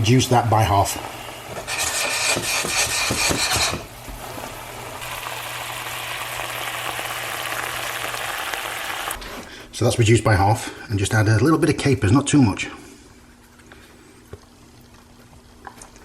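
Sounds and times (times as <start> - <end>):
sauce simmering in a pan: 4.2 - 9.2.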